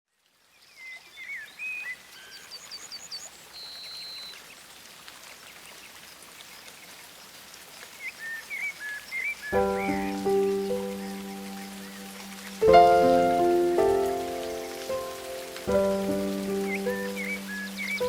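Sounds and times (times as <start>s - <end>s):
falling water hiss: 0.2s - 18.0s
songbirds chirping and singing: 8.0s - 18.0s.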